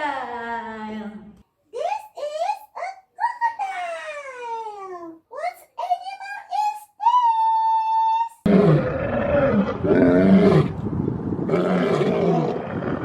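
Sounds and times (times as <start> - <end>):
lion roaring: 8.5 - 13.0.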